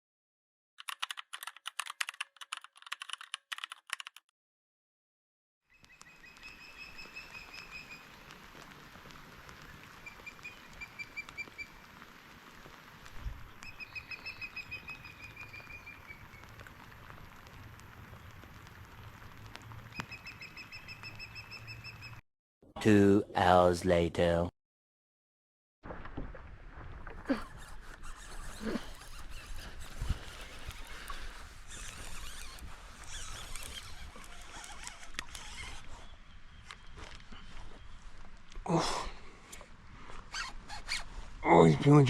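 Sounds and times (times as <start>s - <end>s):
rapid clicking: 0.8s - 4.2s
outdoor hiss: 6.5s - 20.3s.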